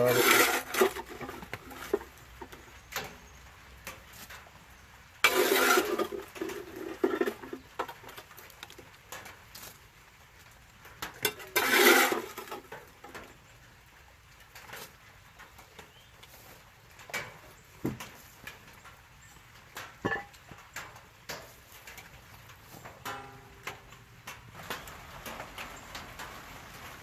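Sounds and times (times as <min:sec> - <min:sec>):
metal scraping and clanking: 0:00.0 - 0:02.5, 0:05.2 - 0:08.2, 0:11.2 - 0:12.8, 0:20.0 - 0:20.4.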